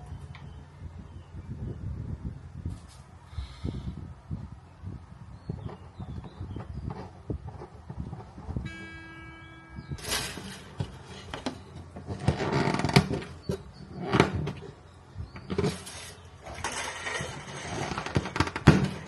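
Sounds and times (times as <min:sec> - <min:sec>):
scraping or rubbing: 0:09.9 - 0:14.7, 0:15.4 - 0:19.0.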